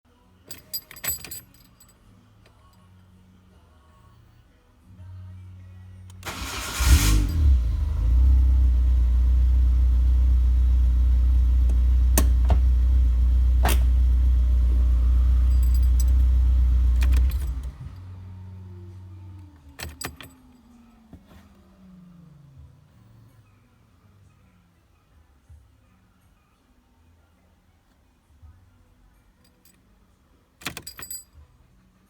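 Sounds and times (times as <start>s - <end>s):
car engine starting and idling: 6.1s - 23.6s.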